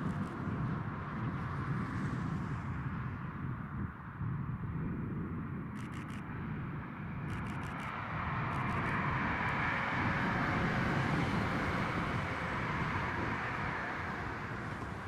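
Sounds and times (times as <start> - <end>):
diesel train passing at speed: 6.6 - 15.0.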